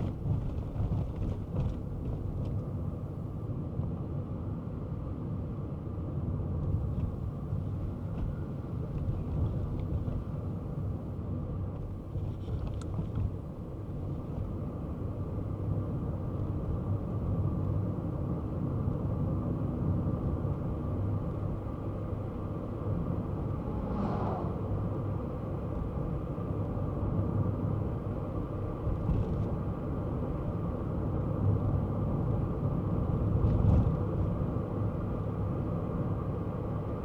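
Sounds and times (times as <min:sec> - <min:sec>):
car engine and road rumble: 0:00.0 - 0:37.0
rush of noise: 0:23.3 - 0:25.4.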